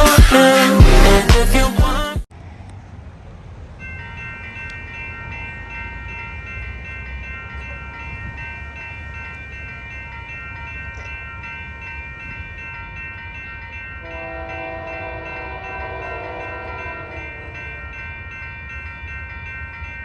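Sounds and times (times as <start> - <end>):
diesel locomotive passing: 2.3 - 20.0
high ringing tone: 3.8 - 20.0
locomotive horn blast: 14.0 - 17.9.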